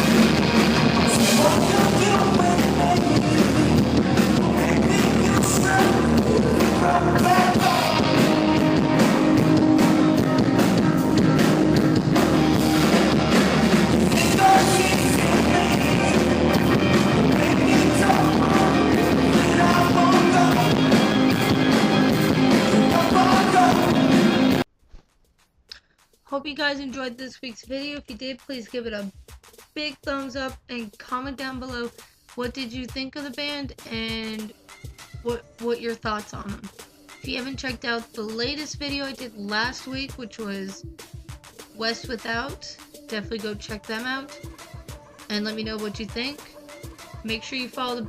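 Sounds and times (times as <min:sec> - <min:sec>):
rock band playing live: 0:00.0 - 0:24.6
person singing: 0:00.9 - 0:12.0, 0:13.9 - 0:24.6, 0:39.9 - 0:48.0.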